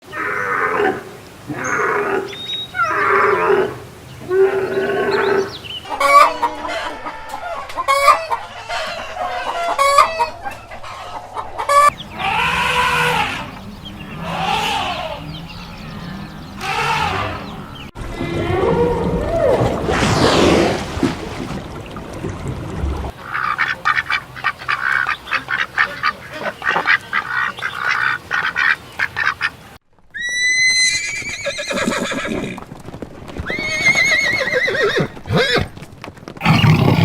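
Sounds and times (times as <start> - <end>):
chickens calling: 4.5 - 18.8.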